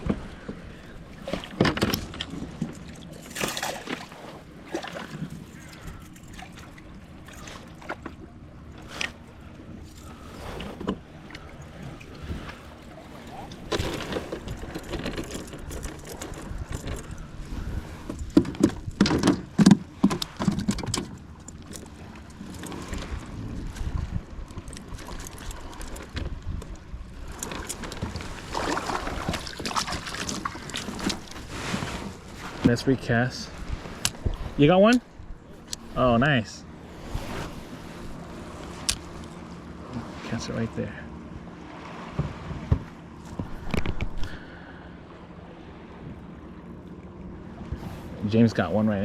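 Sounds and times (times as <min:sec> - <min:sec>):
faint water sounds: 0:00.0 - 0:49.0
low steady rumble: 0:00.0 - 0:49.0
wind buffeting microphone: 0:14.4 - 0:20.0, 0:22.8 - 0:27.4.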